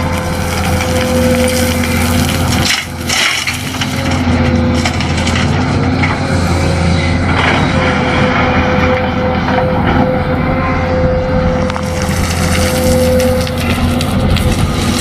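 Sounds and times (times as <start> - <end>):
toy excavator motors whining: 8.5 - 15.0.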